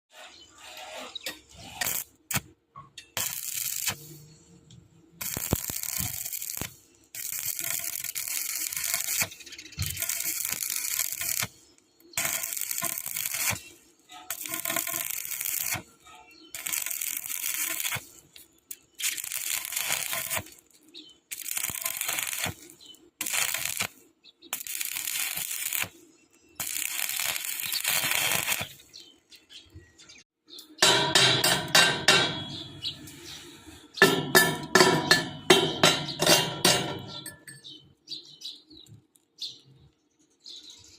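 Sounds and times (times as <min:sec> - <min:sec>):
welding arc crackling and hissing: 0:00.1 - 0:02.5, 0:03.2 - 0:04.4, 0:05.1 - 0:15.9, 0:16.5 - 0:26.0, 0:26.6 - 0:29.0.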